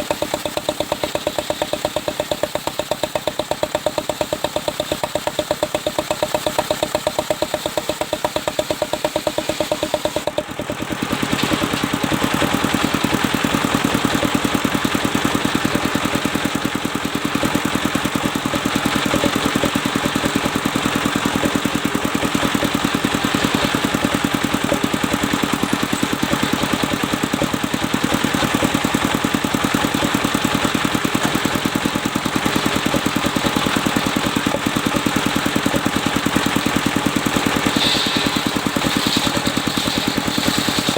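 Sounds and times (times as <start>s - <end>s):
sawmill engine running: 0.0s - 40.9s
saw blade cutting log: 18.4s - 40.9s.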